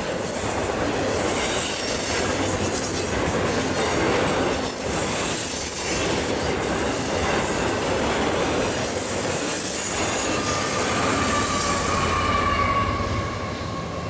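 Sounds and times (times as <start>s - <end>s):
wheel and rail noise: 0.0s - 14.0s
diesel locomotive engine rumble: 2.1s - 14.0s
wheel squeal: 9.8s - 14.0s.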